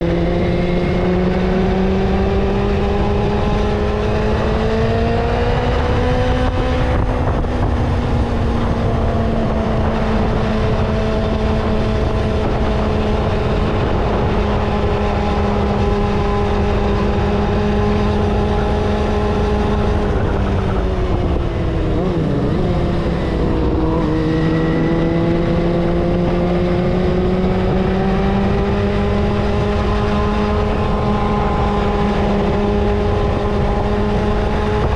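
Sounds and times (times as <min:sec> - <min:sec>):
vehicle engine droning: 0:00.0 - 0:34.9.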